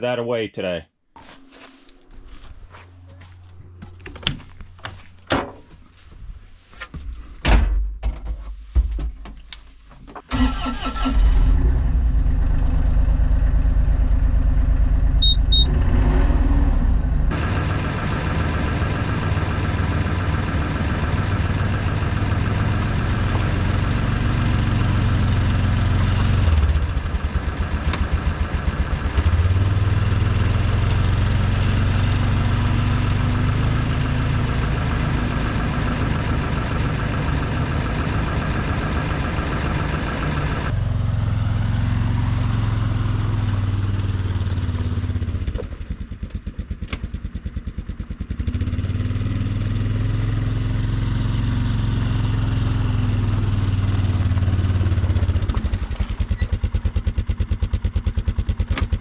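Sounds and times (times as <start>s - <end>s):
small vehicle engine running: 10.3s - 59.0s.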